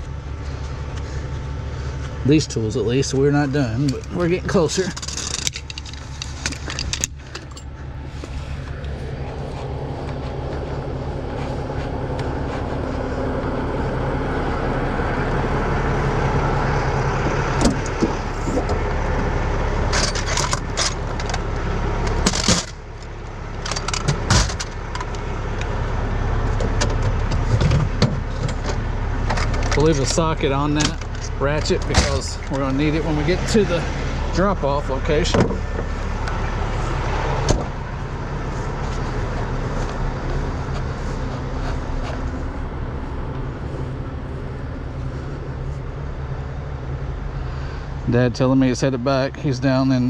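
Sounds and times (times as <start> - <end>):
diesel truck engine idling: 0.0 - 50.0
metal hand tools clinking: 3.8 - 7.7.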